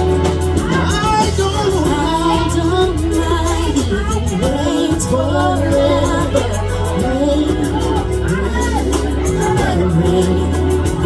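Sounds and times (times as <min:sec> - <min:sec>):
pop song with vocals: 0:00.0 - 0:11.0.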